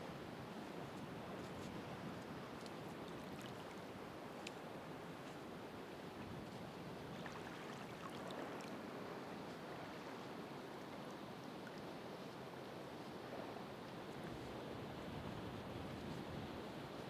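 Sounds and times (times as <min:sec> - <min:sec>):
faint high ticks: 0:04.4 - 0:04.6.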